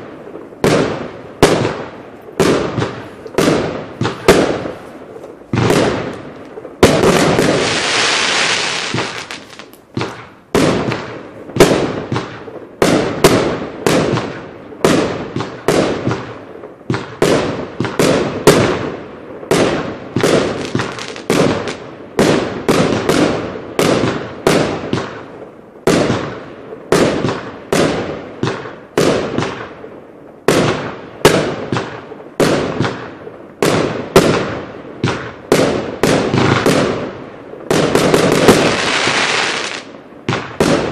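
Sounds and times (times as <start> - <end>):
firework hissing: 7.4 - 9.7, 38.4 - 39.9.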